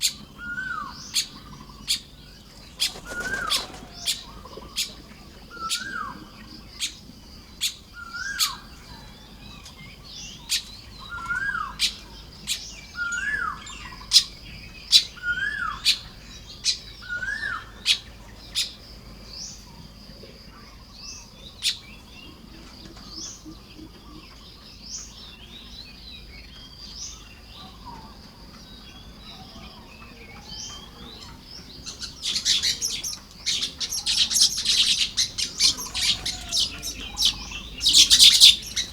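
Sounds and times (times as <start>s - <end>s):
buzzy bird chatter: 0.0s - 8.7s, 30.0s - 38.9s
weaver birds calling: 0.0s - 38.9s.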